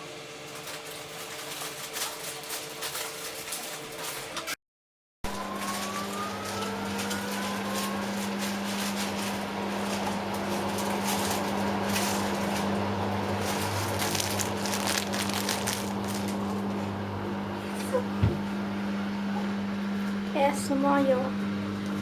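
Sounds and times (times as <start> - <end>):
rising whine: 5.2 - 19.8
appliance motor humming: 5.2 - 22.0.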